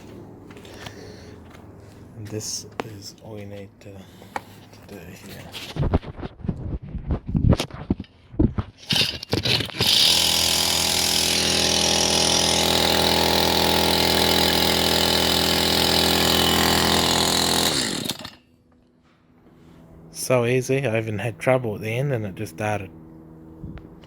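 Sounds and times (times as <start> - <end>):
chainsaw cord pull sputters: 8.8 - 18.4
chainsaw idling: 8.9 - 18.4.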